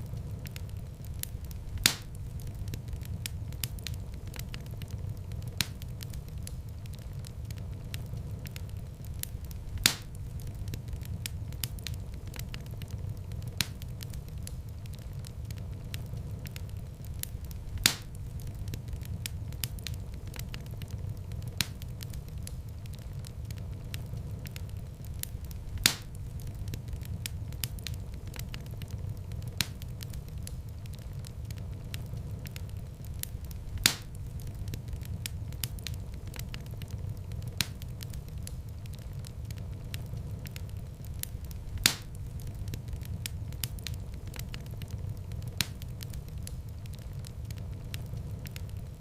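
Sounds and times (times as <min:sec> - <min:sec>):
small fire crackles: 0:00.0 - 0:49.0
wood fire burning: 0:00.0 - 0:49.0
loud fire pop: 0:01.8 - 0:02.2, 0:09.8 - 0:10.2, 0:17.8 - 0:18.2, 0:25.8 - 0:26.2, 0:33.8 - 0:34.2, 0:41.8 - 0:42.2.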